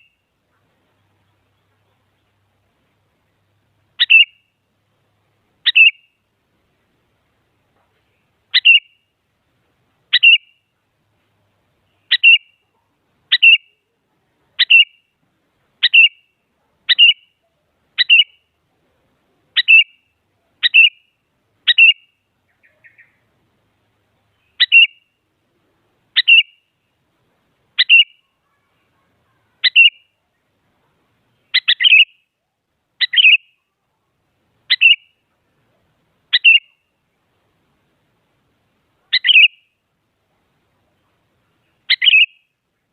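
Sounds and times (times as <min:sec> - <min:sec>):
bulbul calling: 0:00.0 - 0:02.4, 0:03.4 - 0:04.6, 0:05.6 - 0:06.2, 0:08.0 - 0:09.1, 0:10.1 - 0:10.8, 0:11.8 - 0:14.0, 0:14.6 - 0:15.2, 0:15.8 - 0:18.6, 0:19.5 - 0:23.3, 0:24.3 - 0:25.2, 0:26.1 - 0:26.8, 0:27.7 - 0:34.0, 0:34.6 - 0:37.0, 0:39.0 - 0:39.8, 0:40.8 - 0:42.6.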